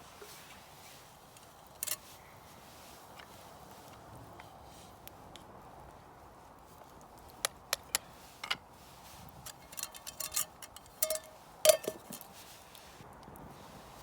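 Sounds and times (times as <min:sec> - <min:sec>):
cookware clinking and tapping: 0:09.5 - 0:12.2
ringing clink: 0:09.7 - 0:12.2.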